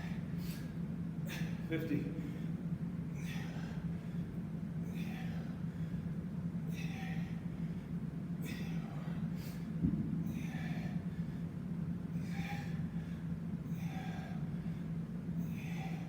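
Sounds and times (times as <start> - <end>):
man breathing heavily: 0.0 - 16.0
steady low hum: 0.0 - 16.0
thump: 9.8 - 10.1.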